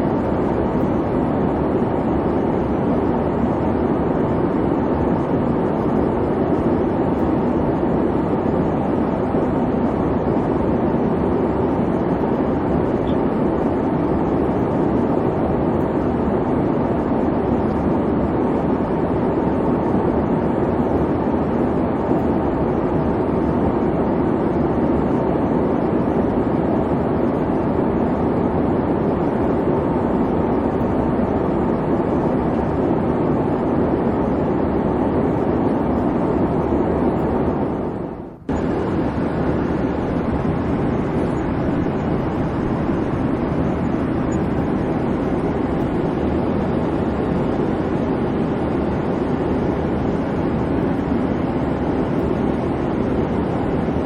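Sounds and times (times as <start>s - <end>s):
airliner cabin rumbling hiss: 24.3s - 54.0s.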